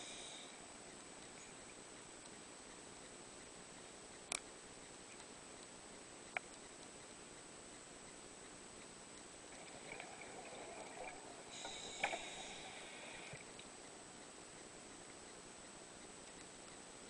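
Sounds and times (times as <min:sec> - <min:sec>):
diver breathing through regulator: 0:11.4 - 0:13.4.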